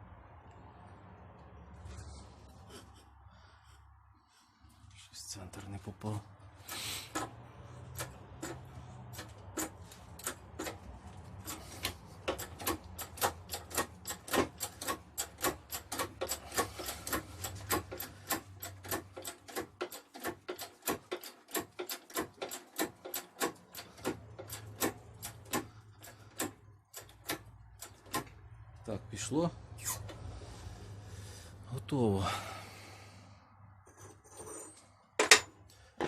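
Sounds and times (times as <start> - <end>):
press clicking regularly: 7.1 - 28.3.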